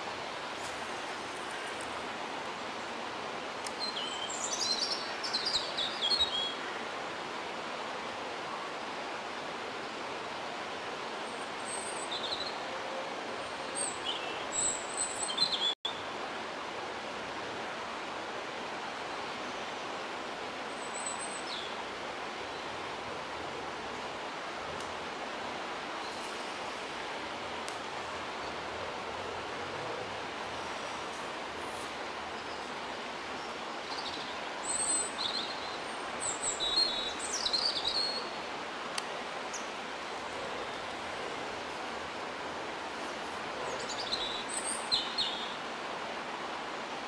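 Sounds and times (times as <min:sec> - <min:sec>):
outdoor background hiss: 0:00.0 - 0:47.0
songbirds singing: 0:03.7 - 0:06.7, 0:11.2 - 0:12.7, 0:13.4 - 0:16.1, 0:31.7 - 0:38.5, 0:43.0 - 0:45.7.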